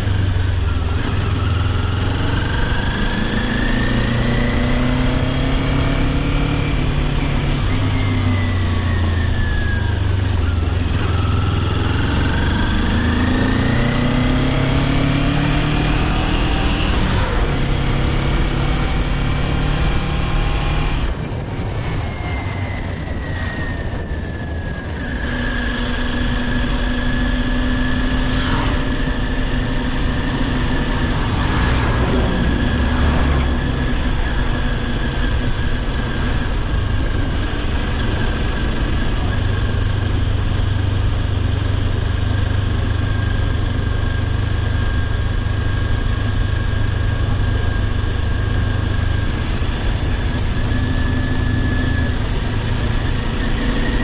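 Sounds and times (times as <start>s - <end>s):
motorcycle engine running: 0.0s - 54.0s
road noise: 0.0s - 54.0s
rushing wind: 0.0s - 54.0s.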